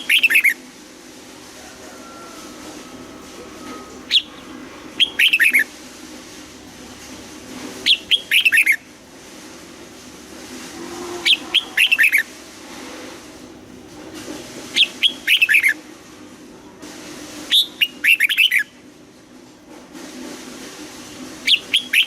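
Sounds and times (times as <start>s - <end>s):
bird singing whistled notes: 0.0s - 0.6s, 3.6s - 5.7s, 7.9s - 8.8s, 14.8s - 15.8s, 17.5s - 18.7s.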